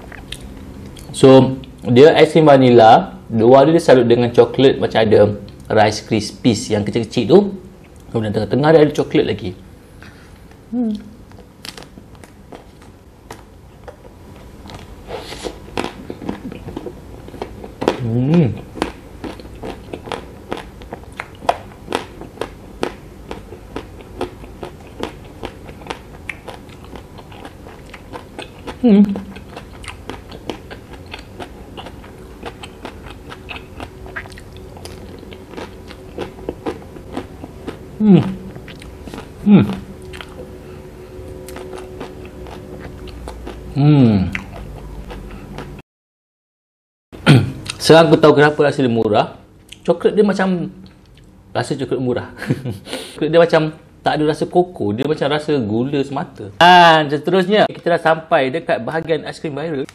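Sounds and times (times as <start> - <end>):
chewing crunchy chocolate: 14.6 - 40.5, 41.4 - 45.8.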